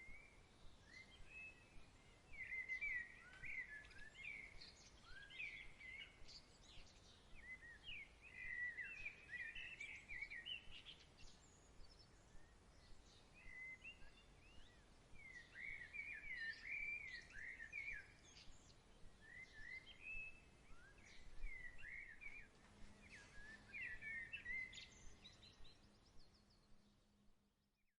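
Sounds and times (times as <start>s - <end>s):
birds chirping: 0.0s - 27.2s
soft steady hiss: 0.0s - 27.8s.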